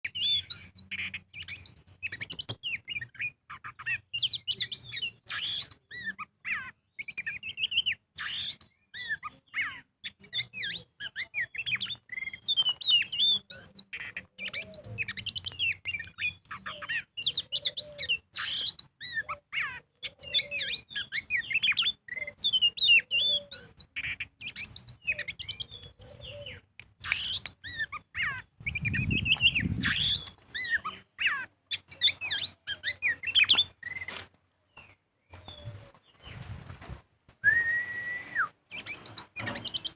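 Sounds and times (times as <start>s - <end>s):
bird singing varied whistles: 0.1s - 3.3s, 4.2s - 6.2s, 20.2s - 30.9s, 37.4s - 39.9s.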